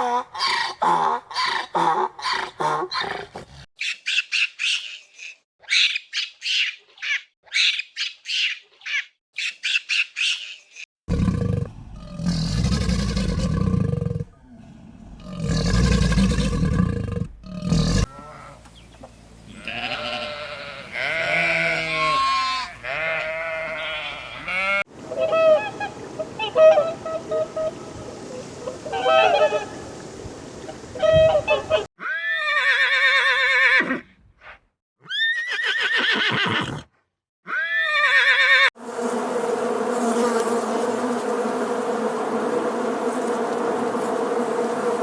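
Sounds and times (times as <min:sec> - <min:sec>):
long deep rough animal calls: 0:11.1 - 0:18.1.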